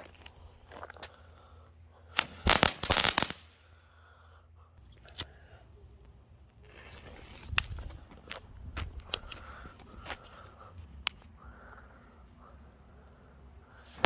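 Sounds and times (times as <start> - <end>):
firework cracking: 2.1 - 3.6, 6.7 - 8.2.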